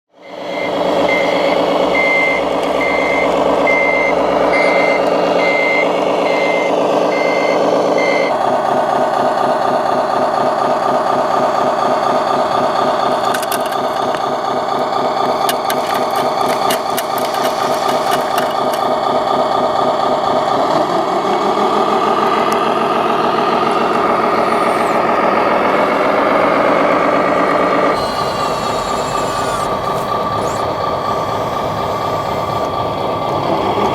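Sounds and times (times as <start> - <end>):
simulated diesel engine sound: 0.1 - 33.9
reversing beeper: 0.2 - 8.4, 22.9 - 32.8
sharp clicks: 15.2 - 18.9.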